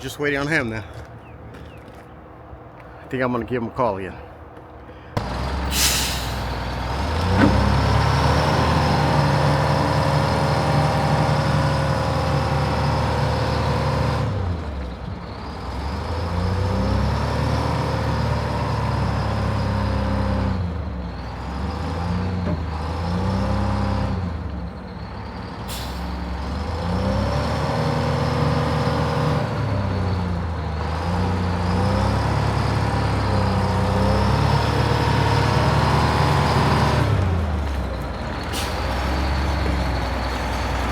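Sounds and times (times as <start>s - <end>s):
diesel engine revving: 5.2s - 40.9s.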